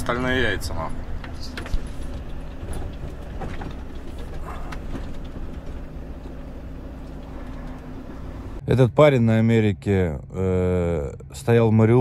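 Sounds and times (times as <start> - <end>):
truck engine running: 0.0 - 8.6
faint clicks and rattles: 1.1 - 8.0.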